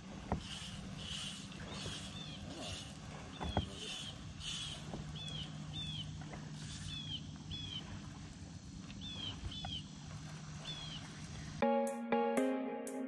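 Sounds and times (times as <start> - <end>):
steady low hum: 0.0 - 11.7
bird chirping: 3.3 - 6.2.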